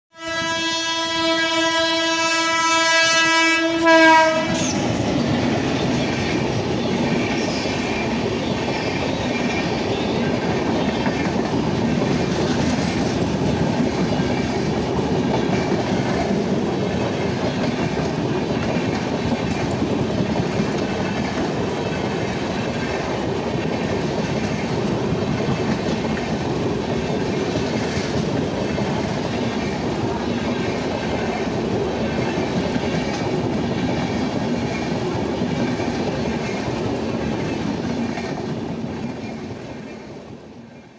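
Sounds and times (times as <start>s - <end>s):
train horn blast: 0.1s - 5.1s
train wheels clacking over joints: 4.7s - 40.3s.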